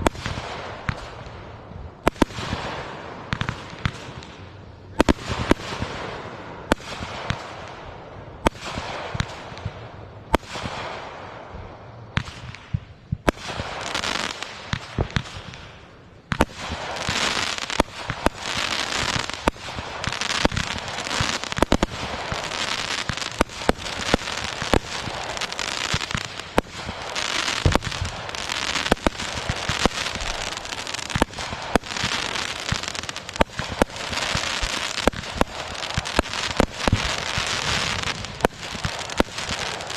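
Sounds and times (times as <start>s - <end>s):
rapid firework bangs: 0.0s - 1.4s, 8.4s - 11.2s, 12.2s - 39.9s
fireworks bursting and crackling: 0.0s - 39.9s.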